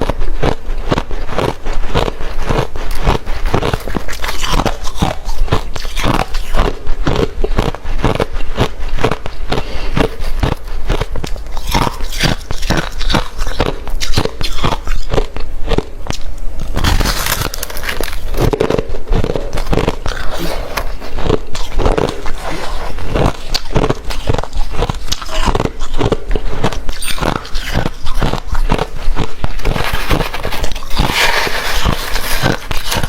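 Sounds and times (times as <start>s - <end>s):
chewing crushed ice: 0.0s - 33.0s.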